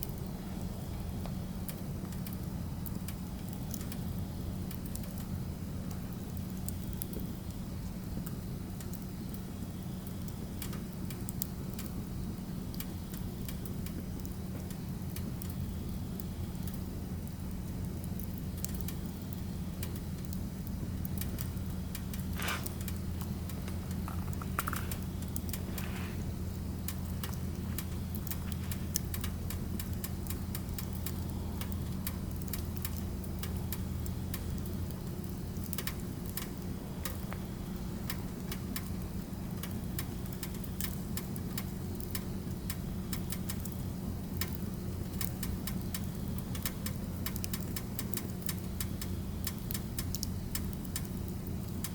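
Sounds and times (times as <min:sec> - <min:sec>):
firewood crackling and popping: 0:00.0 - 0:51.9
steady low hum: 0:00.0 - 0:51.9
whistling hisses from fire: 0:00.0 - 0:51.9.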